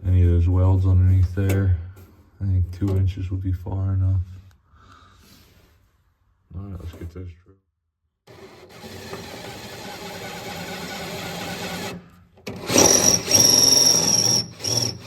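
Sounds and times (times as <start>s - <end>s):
power drill boring through metal: 8.3s - 15.0s.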